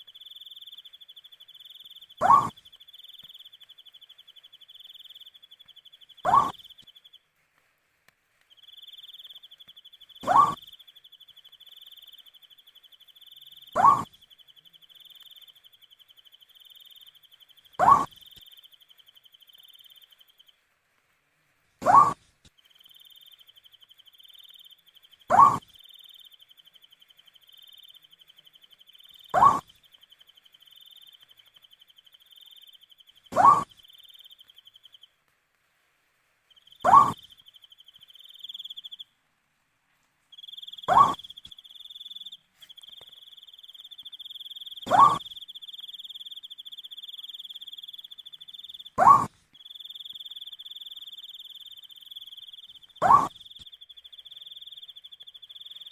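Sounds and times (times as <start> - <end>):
owl hooting: 0.0 - 3.6, 6.2 - 6.9, 8.7 - 10.9, 13.3 - 14.3, 14.9 - 18.5, 21.8 - 22.2, 25.3 - 26.2, 29.1 - 29.8, 32.1 - 34.9, 36.6 - 39.0, 40.4 - 55.9
insect trilling: 0.0 - 7.0, 8.5 - 20.5, 21.8 - 35.1, 36.5 - 39.0, 40.3 - 55.9.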